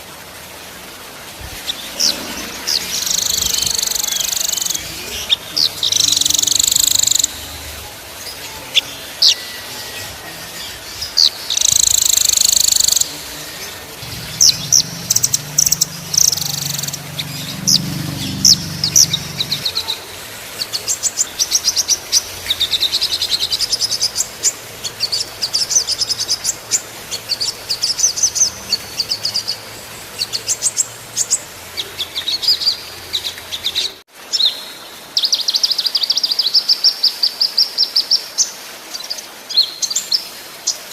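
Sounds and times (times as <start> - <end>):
songbirds trilling: 1.5 - 34.0.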